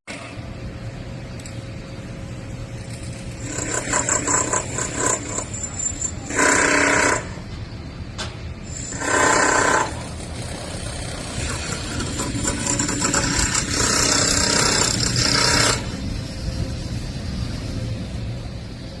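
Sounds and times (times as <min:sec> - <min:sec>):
low machinery rumble: 0:00.1 - 0:19.0
rasping power tool: 0:03.3 - 0:07.4, 0:08.7 - 0:16.0.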